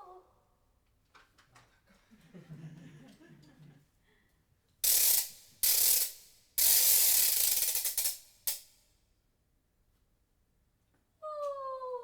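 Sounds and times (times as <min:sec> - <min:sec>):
ratchet winding clicks: 0:04.8 - 0:08.8.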